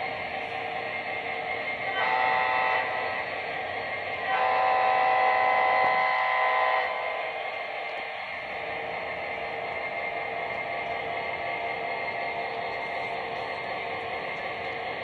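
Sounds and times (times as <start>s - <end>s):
train horn blasts: 1.9s - 3.2s, 4.2s - 7.3s.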